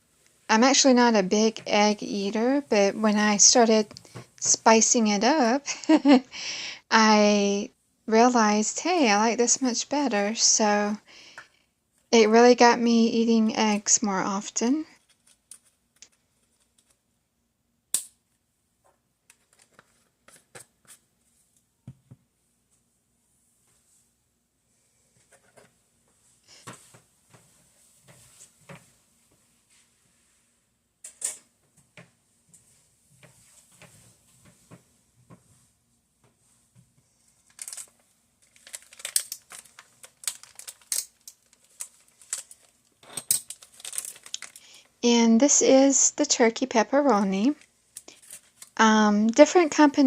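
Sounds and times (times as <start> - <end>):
plastic packaging crinkling: 37.3 - 44.9, 47.5 - 48.8.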